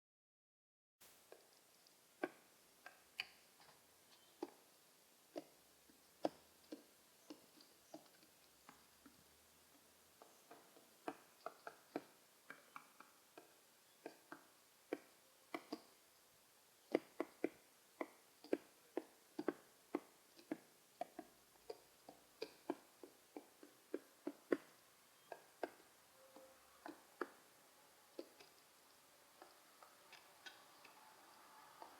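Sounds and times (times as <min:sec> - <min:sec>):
pigeon beak tapping: 0:06.2 - 0:15.9, 0:16.9 - 0:27.4, 0:28.2 - 0:28.7.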